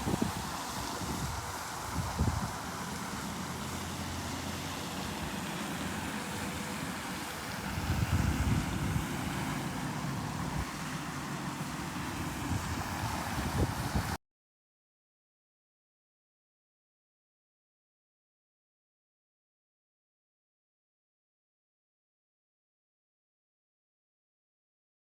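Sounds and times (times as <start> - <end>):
wind buffeting microphone: 0.0 - 2.7, 7.6 - 9.2, 12.3 - 14.2.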